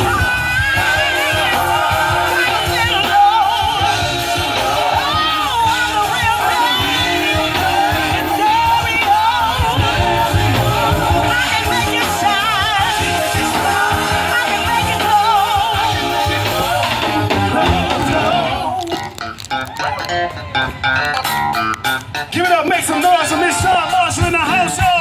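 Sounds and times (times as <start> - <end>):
person singing with vibrato: 0.0 - 19.3
live band playing: 0.0 - 25.0.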